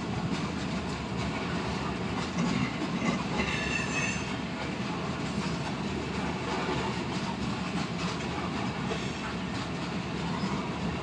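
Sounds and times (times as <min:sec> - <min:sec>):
train wheels rumbling on rails: 0:00.0 - 0:11.0
high wheel squeal: 0:03.4 - 0:04.4.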